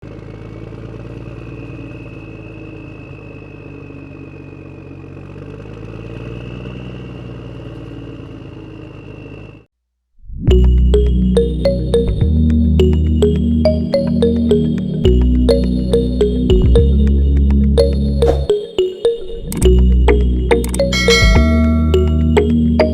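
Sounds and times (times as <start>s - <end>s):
music: 10.5s - 22.9s.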